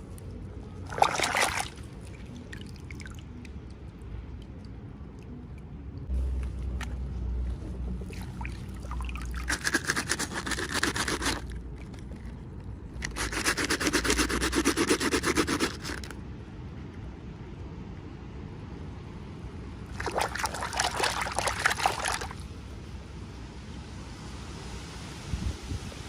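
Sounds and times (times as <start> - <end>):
rapid rubbing strokes: 9.2 - 11.6, 13.0 - 16.1.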